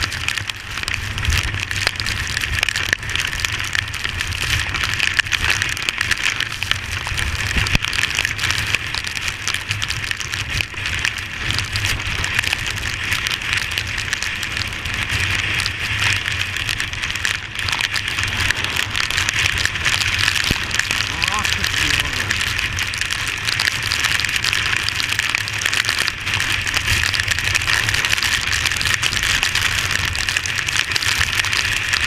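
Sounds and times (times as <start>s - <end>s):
heavy rain rushing: 0.0s - 32.0s
low rumble: 17.2s - 23.9s.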